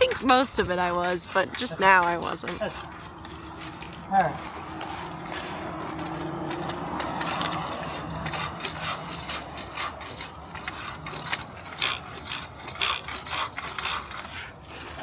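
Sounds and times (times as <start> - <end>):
saw rasping through branch: 0.0 - 15.0.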